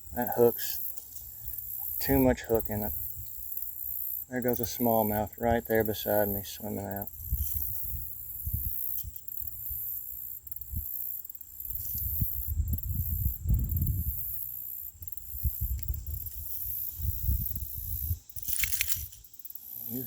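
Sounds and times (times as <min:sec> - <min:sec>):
insects shrilling: 0:00.0 - 0:20.0
low rumbling on microphone: 0:12.0 - 0:14.2
loud rustle: 0:18.4 - 0:19.2.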